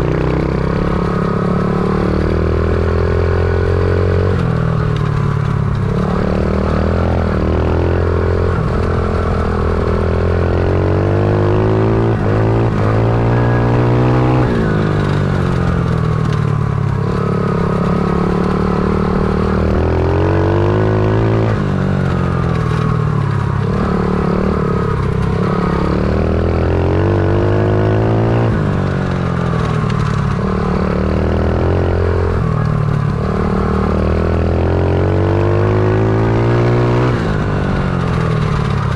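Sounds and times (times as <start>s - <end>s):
pit bike engine revving: 0.0s - 38.9s.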